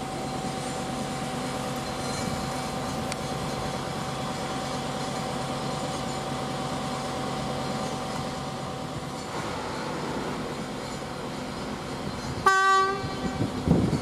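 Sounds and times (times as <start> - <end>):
train rumbling: 0.0 - 14.0
train horn: 12.4 - 13.4.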